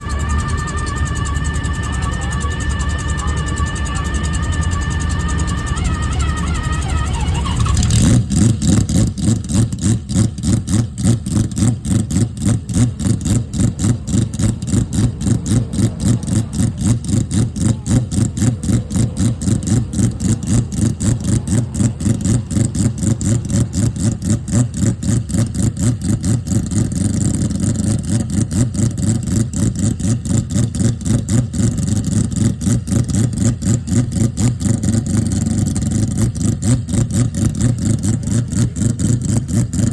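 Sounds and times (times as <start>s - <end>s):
music: 0.0s - 8.0s
rotary race car engine pulsing: 0.0s - 39.9s.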